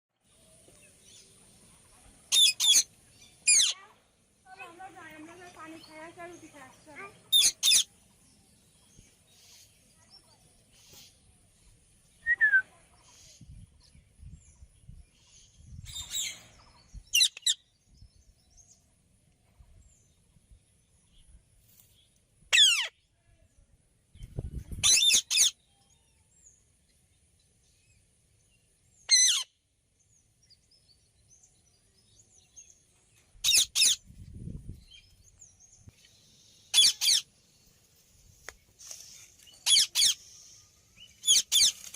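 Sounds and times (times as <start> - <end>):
parrot high-pitched calls: 2.3 - 3.8, 7.3 - 7.9, 17.1 - 17.6, 22.5 - 22.9, 24.8 - 25.6, 29.1 - 29.5, 33.4 - 34.0, 36.7 - 37.2, 39.6 - 40.2, 41.2 - 41.7.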